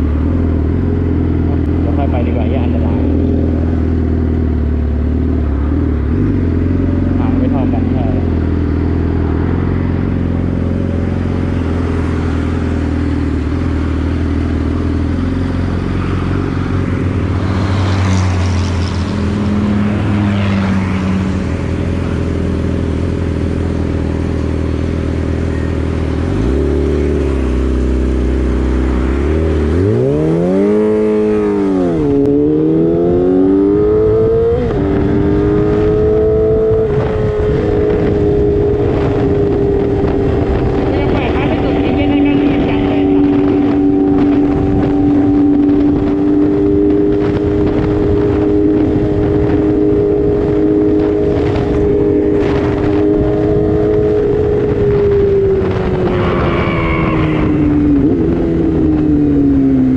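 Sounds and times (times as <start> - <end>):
motorcycle engine cruising: 0.0 - 59.9
motorcycle engine revving: 0.0 - 59.9.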